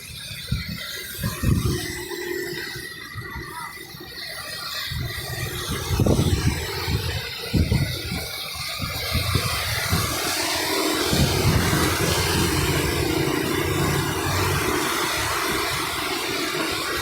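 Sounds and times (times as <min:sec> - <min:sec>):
traffic on wet road: 0:05.2 - 0:17.0
rain falling: 0:10.0 - 0:17.0.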